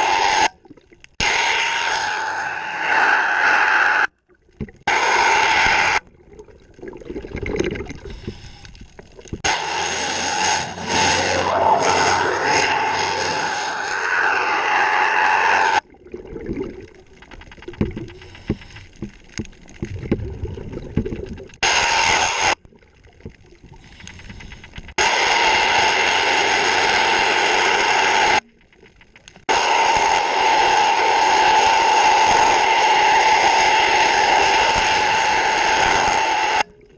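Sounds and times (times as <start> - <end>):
underwater bubbles rushing: 6.0 - 9.4, 15.8 - 21.6
scraping and tapping underwater: 15.9 - 21.6, 22.6 - 25.0, 28.4 - 29.5.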